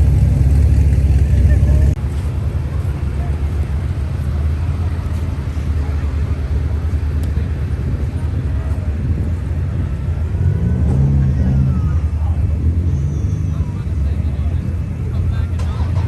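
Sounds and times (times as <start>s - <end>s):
car engine running: 0.0s - 10.4s.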